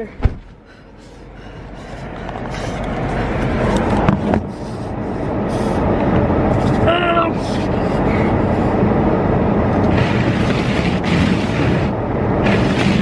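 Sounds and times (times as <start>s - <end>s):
car cabin rushing noise: 0.0s - 0.6s, 2.7s - 4.7s, 9.7s - 13.0s.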